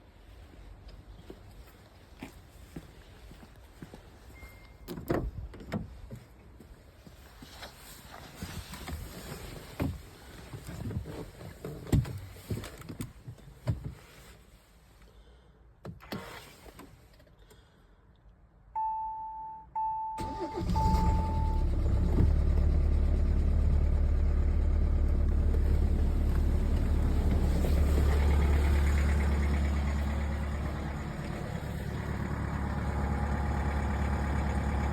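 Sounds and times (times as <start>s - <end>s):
diesel engine cranking and idling: 20.2s - 34.9s.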